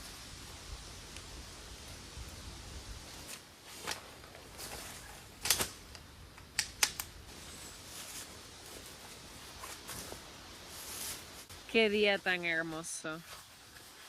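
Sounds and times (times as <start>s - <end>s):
sharp clicks and snaps: 5.4s - 7.2s.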